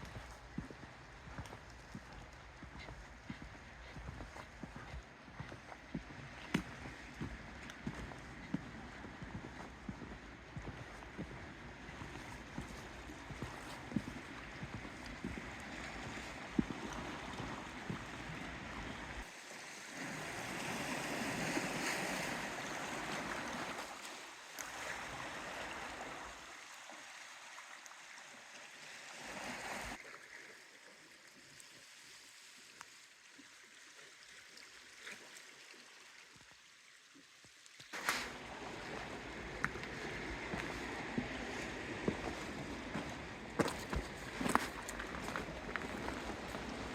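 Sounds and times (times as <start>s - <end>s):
water washing: 0.0s - 19.3s, 38.0s - 46.9s.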